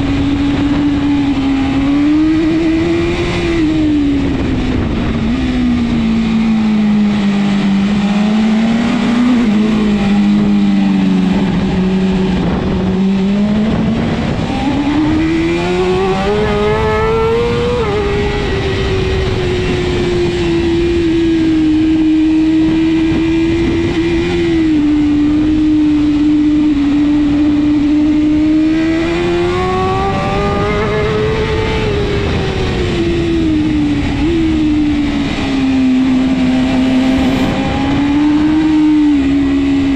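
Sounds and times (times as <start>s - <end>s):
motorcycle engine at high revs: 0.0s - 39.9s
wind and road rush: 0.0s - 39.9s.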